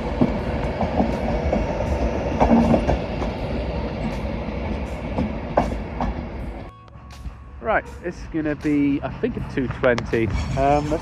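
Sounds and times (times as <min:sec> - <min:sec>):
train wheels clacking: 0:00.0 - 0:06.6
train rumble: 0:00.0 - 0:11.0.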